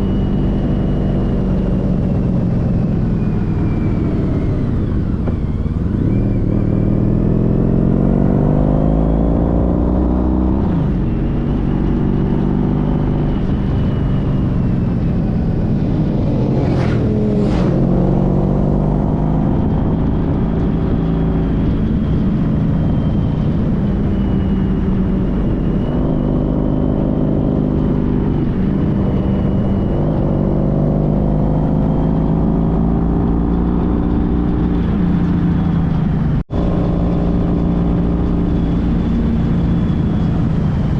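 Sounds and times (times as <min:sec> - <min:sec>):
motorcycle engine running: 0:00.0 - 0:40.9
road and wind noise: 0:00.0 - 0:40.9.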